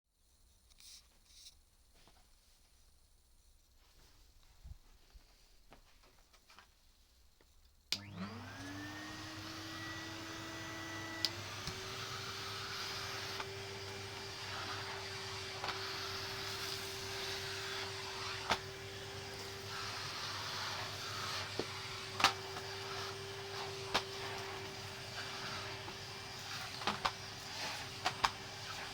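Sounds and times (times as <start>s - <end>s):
vacuum cleaner running: 8.0s - 28.9s.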